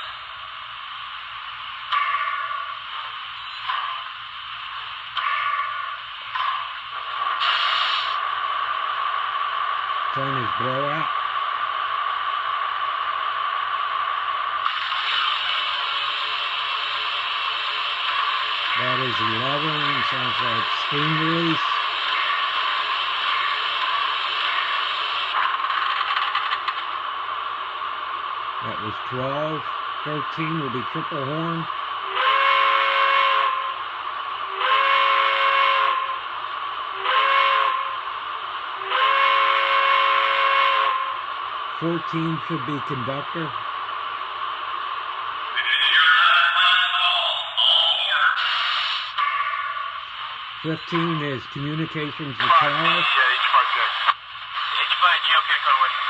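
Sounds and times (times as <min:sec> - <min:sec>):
steady steam hiss: 0:07.1 - 0:09.5, 0:14.6 - 0:25.4, 0:48.3 - 0:49.2
steam hiss from small speaker: 0:07.4 - 0:08.2, 0:48.4 - 0:49.2
steam whistle blasts: 0:32.1 - 0:33.6, 0:34.6 - 0:36.1, 0:37.0 - 0:37.9, 0:38.8 - 0:41.1.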